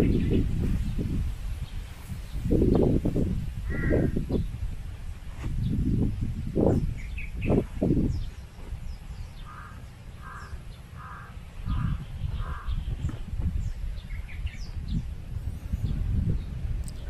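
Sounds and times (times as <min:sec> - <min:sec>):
small birds chirping: 0:00.0 - 0:04.7, 0:05.4 - 0:17.0
low rumbling noise: 0:00.0 - 0:17.0.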